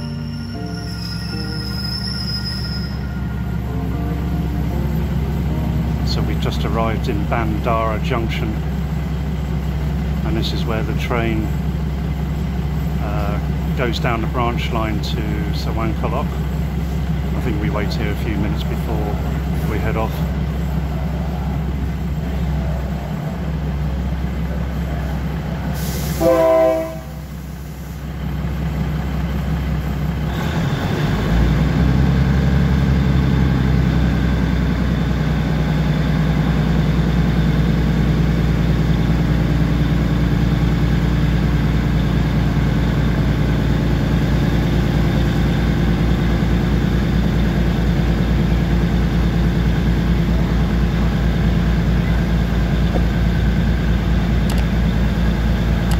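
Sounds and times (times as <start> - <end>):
diesel train engine: 0.0 - 55.9
train horn blast: 26.0 - 27.3.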